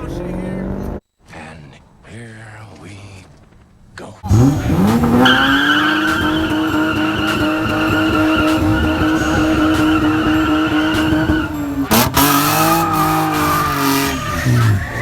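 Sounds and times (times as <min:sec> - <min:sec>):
car engine at high revs: 0:00.0 - 0:01.0, 0:04.2 - 0:15.0
tires squealing: 0:03.2 - 0:15.0.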